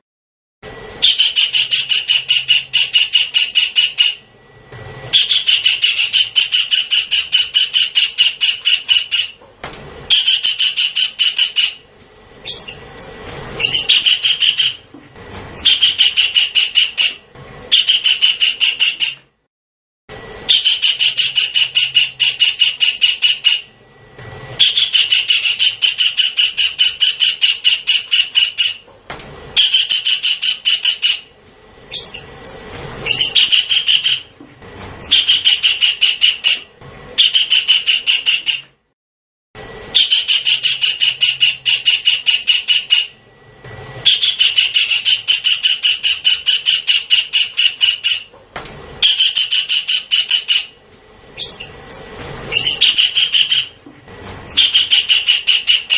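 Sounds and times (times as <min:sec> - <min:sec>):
kingfisher rattling calls: 0:01.0 - 0:04.2, 0:05.1 - 0:09.4, 0:10.1 - 0:11.8, 0:12.4 - 0:14.9, 0:15.5 - 0:19.2, 0:20.5 - 0:23.7, 0:24.6 - 0:28.8, 0:29.6 - 0:31.3, 0:31.9 - 0:34.3, 0:35.0 - 0:38.6, 0:40.0 - 0:43.1, 0:44.0 - 0:48.3, 0:49.0 - 0:50.8, 0:51.4 - 0:53.8, 0:54.4 - 0:55.9.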